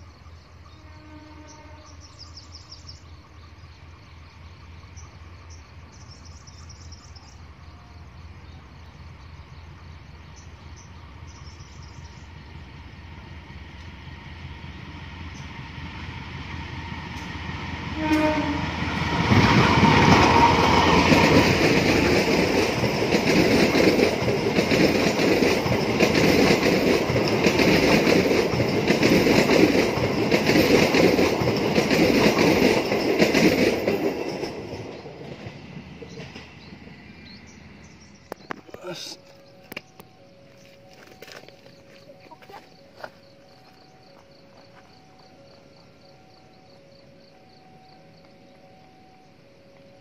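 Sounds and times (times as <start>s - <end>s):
passenger train rumbling past: 0.0s - 50.0s
locomotive horn: 0.7s - 2.1s, 17.9s - 19.0s.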